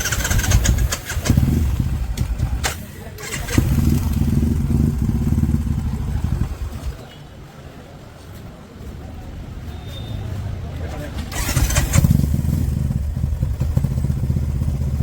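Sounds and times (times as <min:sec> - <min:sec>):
motorcycle engine running: 0:00.0 - 0:07.0, 0:11.3 - 0:15.0.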